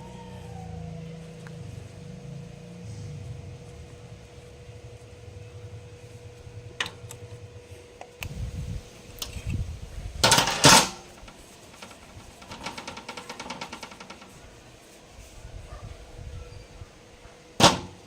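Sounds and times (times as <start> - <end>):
loud metallic clatter: 10.2 - 11.2, 17.6 - 18.0.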